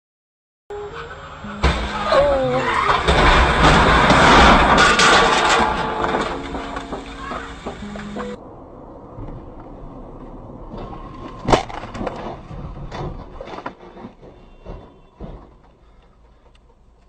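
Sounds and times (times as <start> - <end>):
road noise: 0.7 - 17.0
vehicle crash: 0.8 - 16.0
debris knocking and clattering: 2.7 - 8.4, 10.6 - 16.0.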